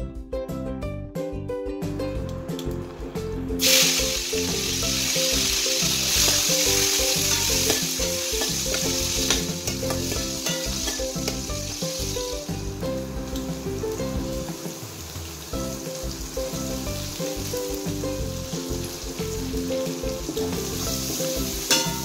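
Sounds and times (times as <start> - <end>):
chillies sizzling in hot oil: 3.6 - 22.0
metal spoon stirring in wok: 6.0 - 12.2.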